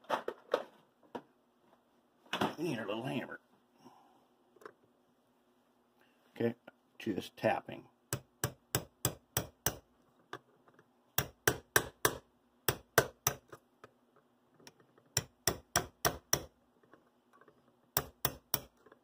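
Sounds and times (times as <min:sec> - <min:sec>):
hammer tapping metal punch: 0:08.1 - 0:09.9, 0:11.2 - 0:13.6, 0:14.7 - 0:16.6, 0:17.9 - 0:19.0.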